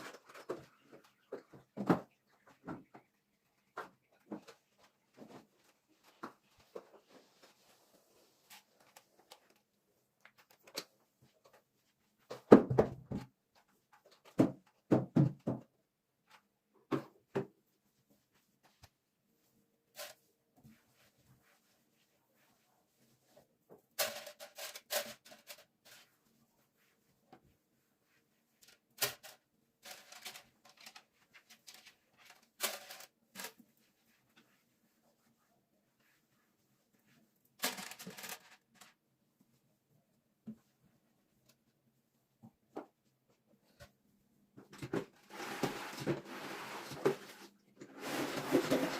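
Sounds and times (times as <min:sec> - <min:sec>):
objects knocking and thumping: 0:00.0 - 0:03.1, 0:12.3 - 0:13.4, 0:14.0 - 0:15.8, 0:44.6 - 0:48.9
objects knocking and clattering: 0:12.3 - 0:13.3, 0:14.0 - 0:15.8.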